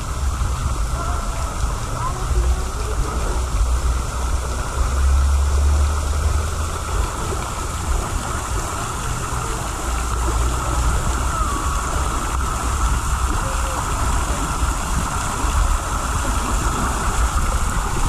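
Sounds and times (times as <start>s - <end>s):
running and splashing water: 0.0s - 18.0s
wind rumbling on microphone: 0.0s - 18.0s.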